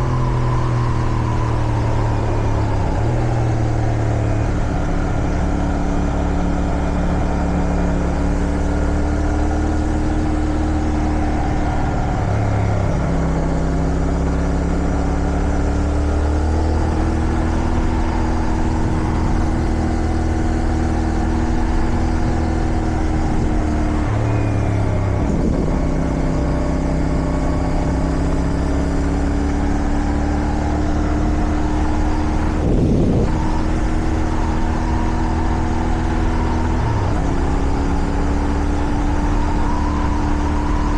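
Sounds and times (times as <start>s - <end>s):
motorcycle engine running: 0.0s - 40.9s
wind noise: 0.0s - 40.9s.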